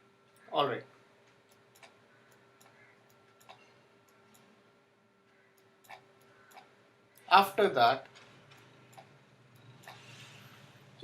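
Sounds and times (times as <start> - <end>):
faint steady hum: 0.0 - 11.0
faint computer mouse clicks: 1.5 - 4.5.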